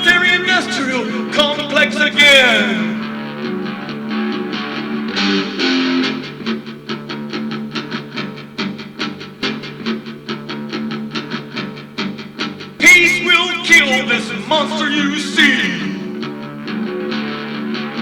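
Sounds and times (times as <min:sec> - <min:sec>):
electric guitar strumming: 0:00.0 - 0:03.6, 0:12.8 - 0:16.3.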